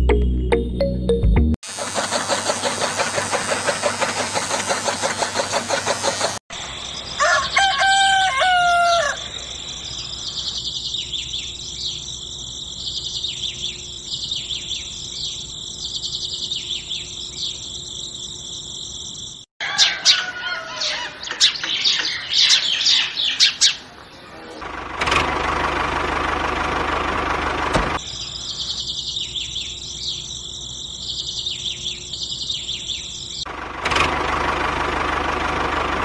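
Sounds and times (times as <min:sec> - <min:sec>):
pulsing rattling noise: 0:01.7 - 0:06.4
rooster crowing: 0:07.2 - 0:09.9, 0:19.6 - 0:23.0
small birds chirping: 0:09.0 - 0:24.6, 0:28.0 - 0:33.5.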